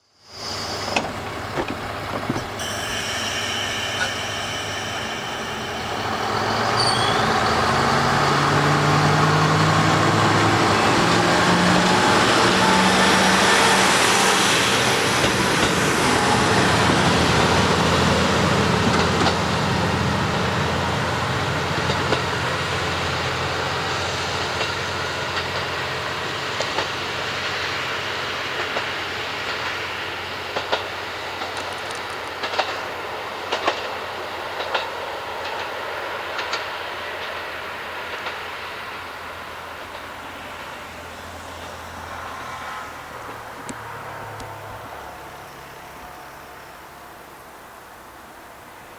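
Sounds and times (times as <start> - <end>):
diesel railcar engine revving: 0.4 - 34.7
wheels clacking over rail joints: 0.5 - 7.1, 9.5 - 20.2, 28.6 - 38.6.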